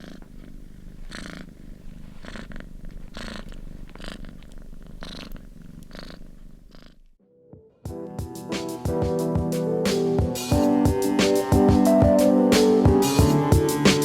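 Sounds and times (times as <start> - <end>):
cat purring: 0.0 - 7.2.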